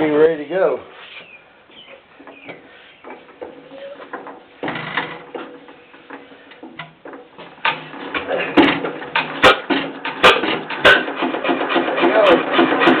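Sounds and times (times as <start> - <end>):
engine mechanical clatter: 7.3 - 13.0.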